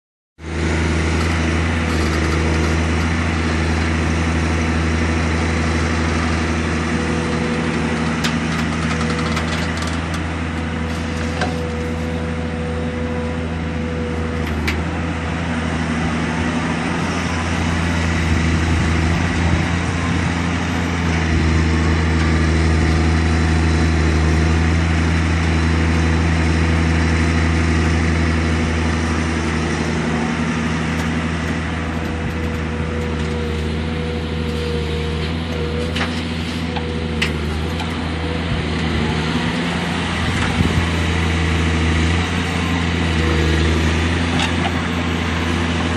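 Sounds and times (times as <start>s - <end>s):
excavator engine running: 0.4s - 45.9s.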